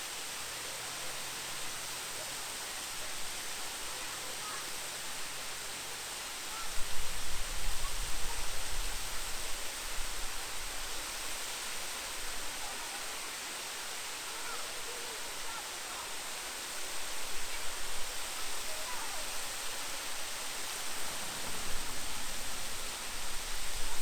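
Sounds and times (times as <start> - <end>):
large waterfall rushing: 0.0 - 24.0
wind rumble on microphone: 20.6 - 24.0.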